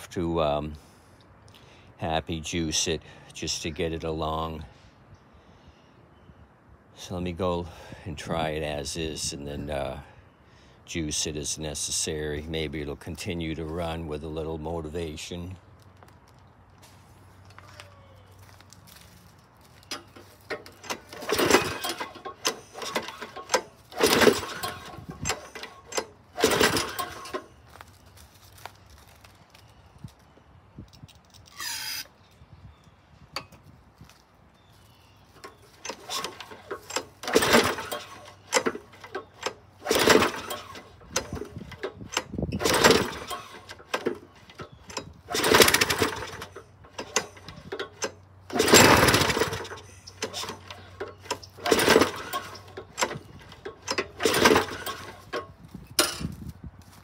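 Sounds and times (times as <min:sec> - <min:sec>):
mower engine pull-started: 0:19.8 - 0:28.0, 0:35.4 - 0:56.4.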